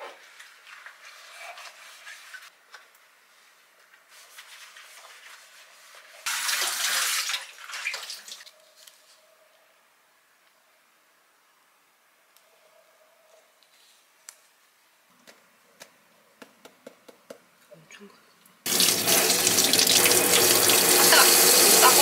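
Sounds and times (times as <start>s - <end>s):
tap running: 18.7s - 22.0s
water splashing: 18.7s - 22.0s.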